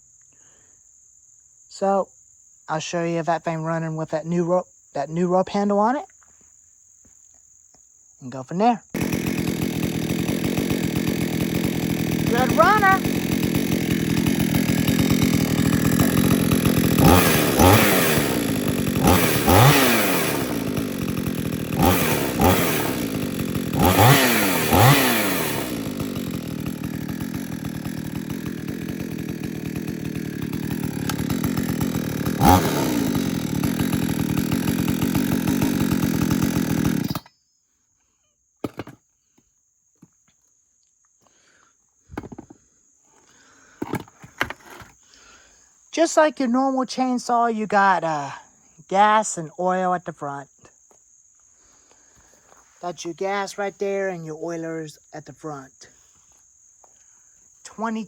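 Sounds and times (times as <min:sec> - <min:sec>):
chainsaw engine revving: 0:08.9 - 0:37.3, 0:38.6 - 0:39.0.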